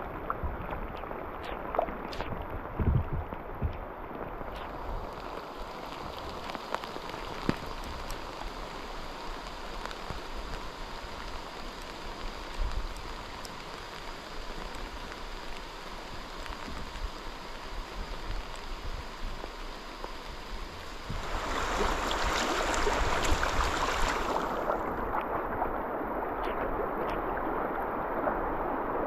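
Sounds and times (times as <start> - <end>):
raindrops clicking: 0.0 - 17.1
moving water: 0.0 - 29.0
rain hiss: 0.0 - 29.0.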